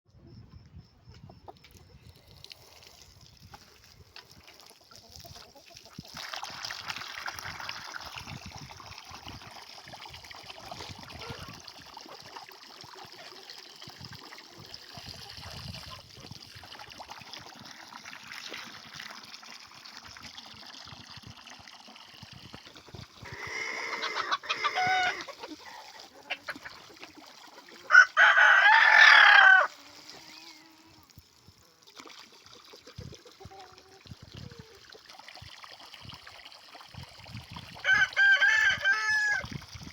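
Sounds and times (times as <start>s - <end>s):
chickens clucking: 22.9s - 29.7s
rooster crowing: 27.9s - 29.7s, 37.8s - 39.5s.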